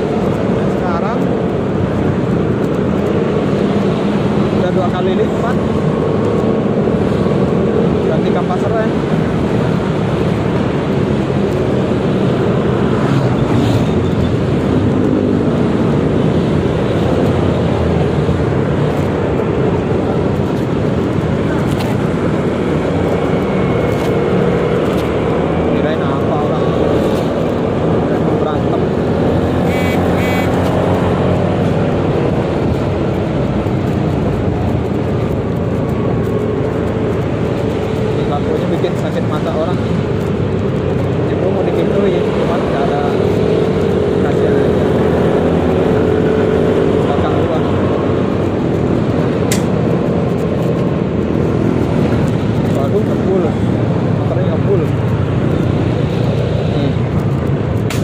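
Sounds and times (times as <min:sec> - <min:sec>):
road and wind noise: 0:00.0 - 0:58.0
short high beeps: 0:29.7 - 0:30.5.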